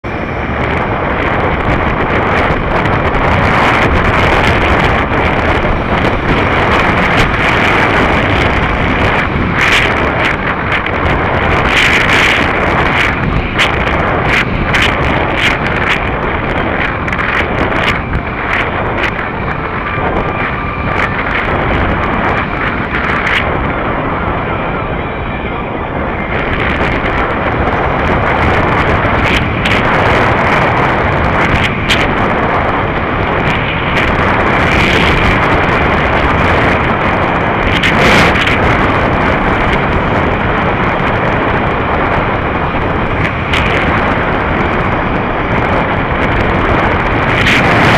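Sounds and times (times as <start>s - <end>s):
vehicle running noise: 0.0s - 47.9s
wind buffeting microphone: 0.0s - 47.9s
crackles and knocks: 0.1s - 24.5s, 26.1s - 47.9s.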